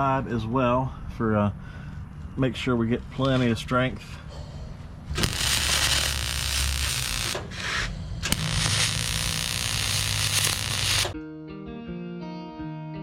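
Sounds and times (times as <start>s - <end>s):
arc welder hissing: 5.1s - 11.2s.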